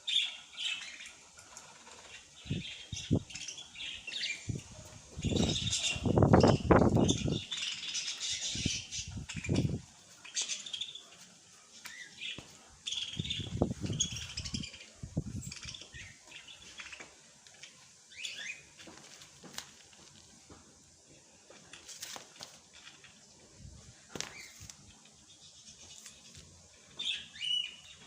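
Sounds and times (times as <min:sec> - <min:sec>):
small birds chirping: 0:00.0 - 0:28.0
wings fluttering: 0:21.7 - 0:23.2, 0:23.9 - 0:25.1.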